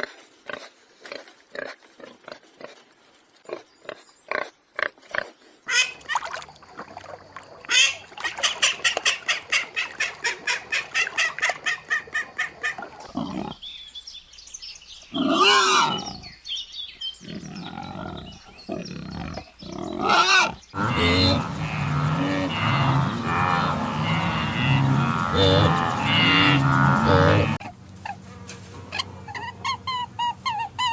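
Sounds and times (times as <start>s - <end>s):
farm animal calls: 15.1s - 16.3s, 17.2s - 27.6s.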